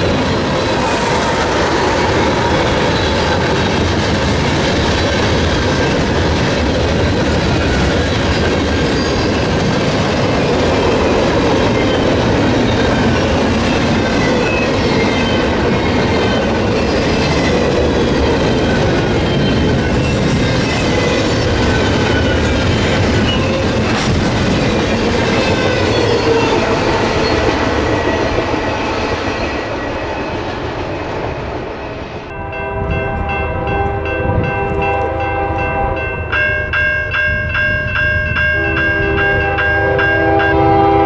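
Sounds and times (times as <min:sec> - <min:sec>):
train wheels rumbling on rails: 0:00.0 - 0:41.0
wheels squealing against rail: 0:07.6 - 0:09.7, 0:10.4 - 0:31.0.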